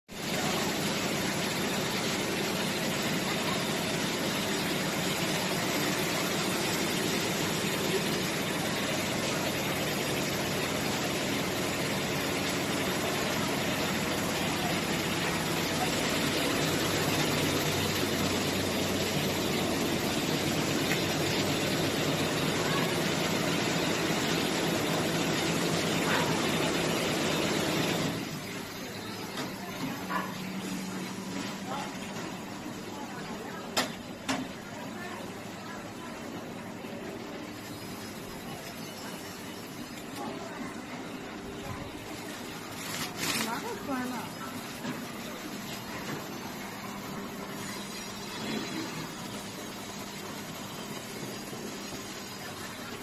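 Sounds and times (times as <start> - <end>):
industrial machine whirring: 0.2 - 33.6.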